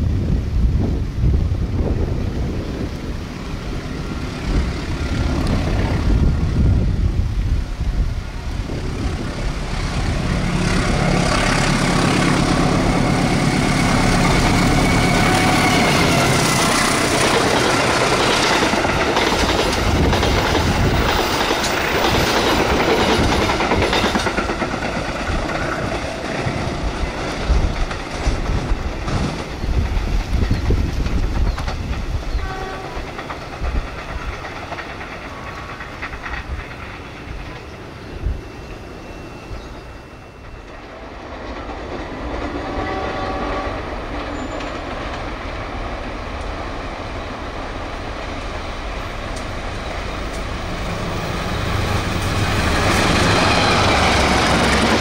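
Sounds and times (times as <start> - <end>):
locomotive engine rumble: 0.1 - 41.8
train wheels clattering over rails: 8.4 - 55.0.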